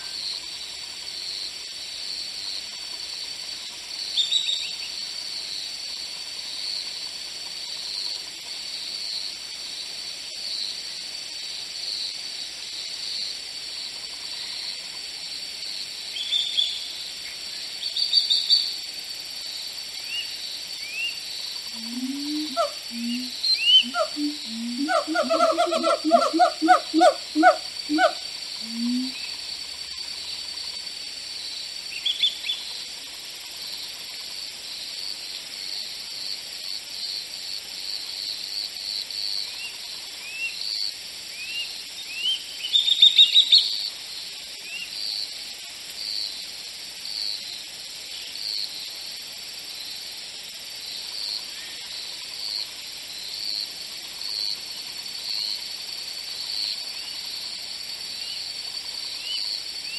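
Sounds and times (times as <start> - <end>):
low pitched animal calls: 21.7 - 29.2
bird chirping: 21.7 - 29.3.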